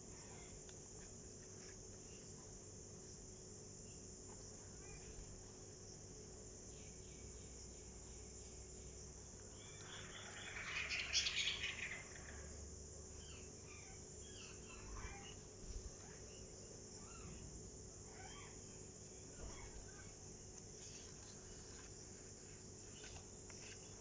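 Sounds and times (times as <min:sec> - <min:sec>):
faint high hiss: 0:06.6 - 0:13.4
faint chirps: 0:06.6 - 0:24.0.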